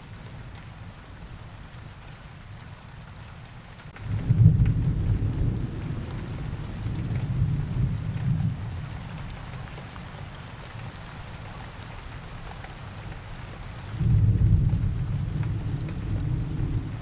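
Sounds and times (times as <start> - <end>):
steady rain: 0.0 - 17.0
thunder rumbling: 14.0 - 17.0.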